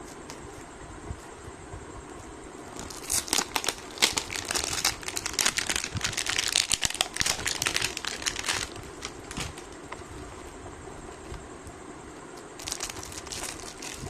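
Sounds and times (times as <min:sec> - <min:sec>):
packaging crinkling and rustling: 0:02.8 - 0:10.5, 0:12.6 - 0:14.0.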